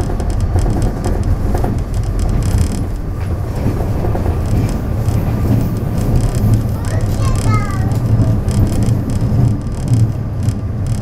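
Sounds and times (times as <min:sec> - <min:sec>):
train engine and wheels rumbling: 0:00.0 - 0:11.0
short clicks and rattles: 0:03.6 - 0:11.0.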